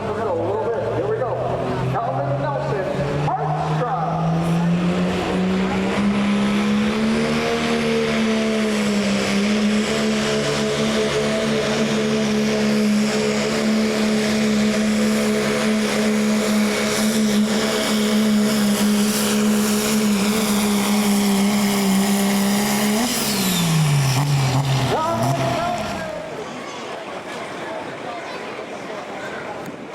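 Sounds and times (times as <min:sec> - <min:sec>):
diesel engine at high revs: 0:00.0 - 0:26.4.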